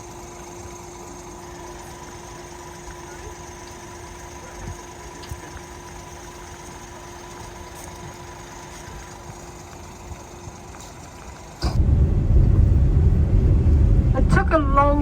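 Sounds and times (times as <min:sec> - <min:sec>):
car engine idling: 0:11.3 - 0:15.0
loud low rumble: 0:11.6 - 0:15.0.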